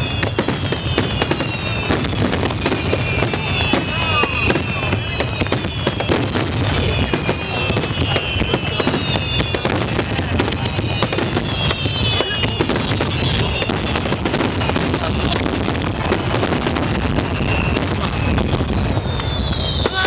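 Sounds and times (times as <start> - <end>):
fireworks shells bursting: 0.0 - 20.0
whistles sliding down in pitch: 17.1 - 20.0.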